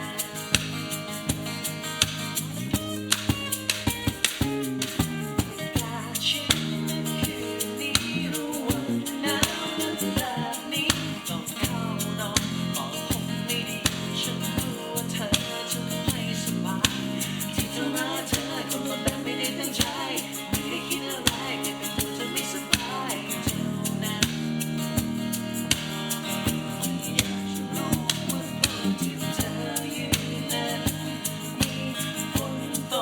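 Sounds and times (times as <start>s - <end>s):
drum kit beat: 0.0s - 33.0s
guitar: 0.0s - 33.0s
person singing: 5.6s - 24.7s, 26.1s - 33.0s.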